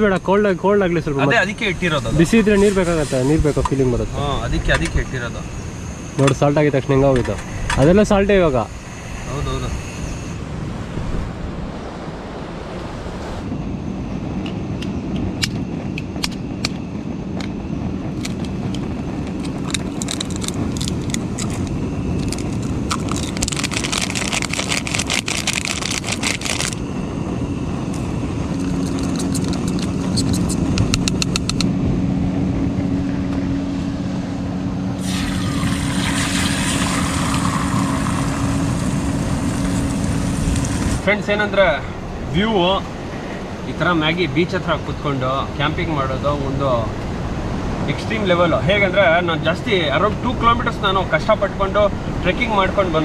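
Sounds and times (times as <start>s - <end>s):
hiss: 2.0s - 4.3s, 35.0s - 41.0s
camping stove humming: 15.4s - 41.2s.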